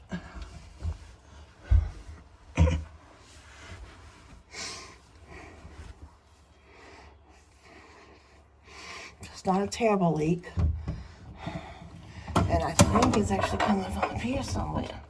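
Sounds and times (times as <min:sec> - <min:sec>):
soft breaths: 0:00.0 - 0:09.5, 0:10.7 - 0:12.4.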